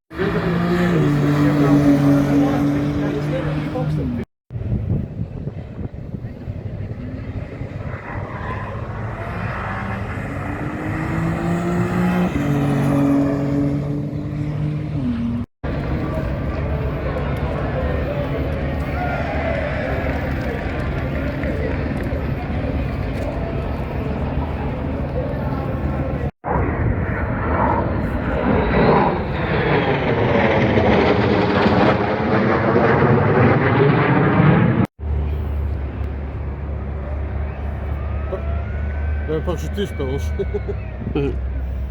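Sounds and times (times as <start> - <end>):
racing motorcycle engine accelerating: 0.1 - 4.2, 7.5 - 15.5
aircraft engine drone overhead: 0.1 - 41.9.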